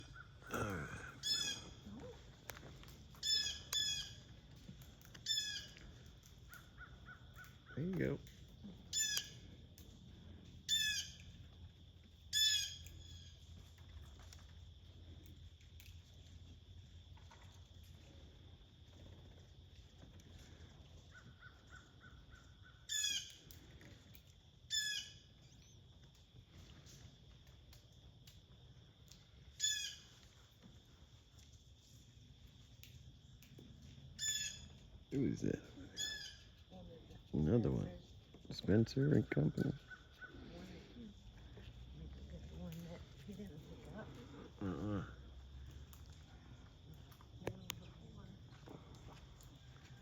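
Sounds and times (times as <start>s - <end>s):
harsh bird calls: 0.0s - 1.8s.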